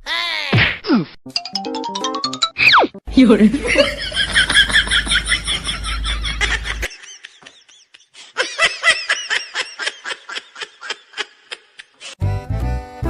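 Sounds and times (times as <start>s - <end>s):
high-pitched giggling laughter: 3.6s - 12.0s.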